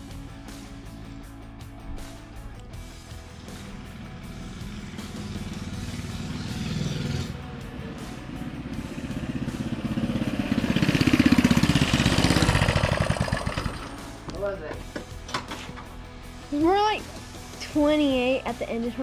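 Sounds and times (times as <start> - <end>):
mini bike engine passing by: 3.4 - 14.1.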